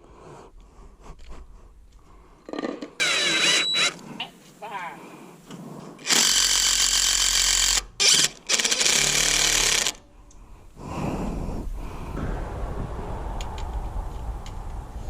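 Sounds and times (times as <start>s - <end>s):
power driver driving screws: 6.0s - 10.0s.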